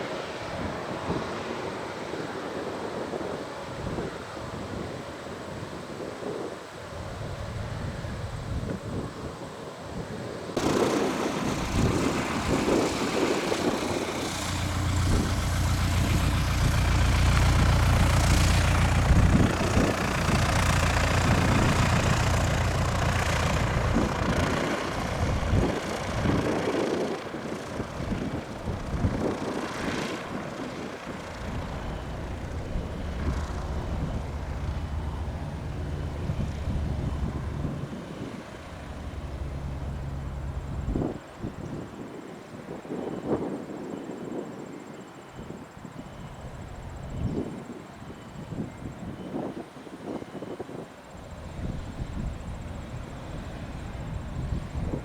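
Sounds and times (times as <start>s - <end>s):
aircraft engines running: 0.0s - 55.0s.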